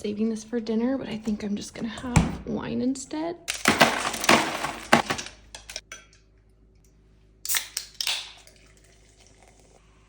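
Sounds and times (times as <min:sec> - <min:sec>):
clattering and rustling handling noises: 0:03.5 - 0:05.8.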